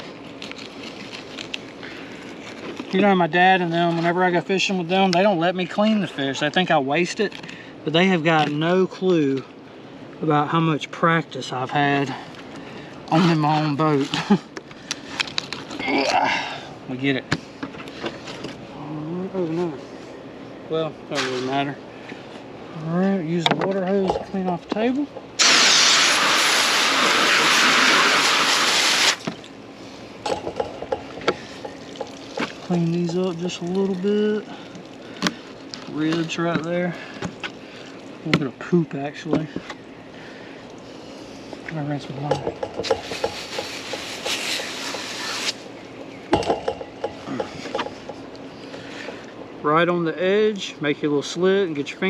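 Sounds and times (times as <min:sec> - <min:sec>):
water hose spraying: 0:25.4 - 0:29.2, 0:31.3 - 0:35.2, 0:42.8 - 0:45.7.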